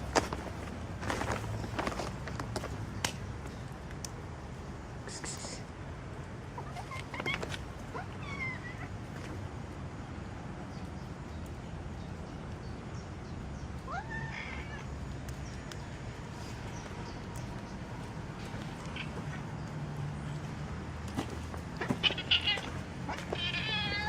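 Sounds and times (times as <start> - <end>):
cat meowing: 6.6 - 8.9, 13.9 - 14.9, 18.8 - 19.5, 21.8 - 24.0.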